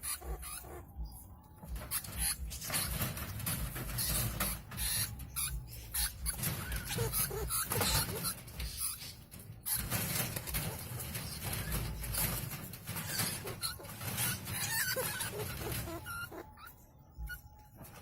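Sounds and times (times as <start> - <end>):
animals scrabbling and rattling: 0.0 - 18.0
high animal cries: 4.0 - 9.0, 13.0 - 17.4.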